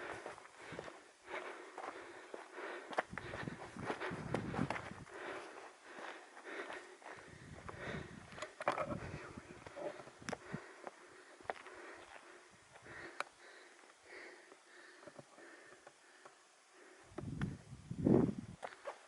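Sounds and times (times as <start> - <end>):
footsteps on ground: 0.0 - 13.0
heavy breathing: 0.0 - 17.2.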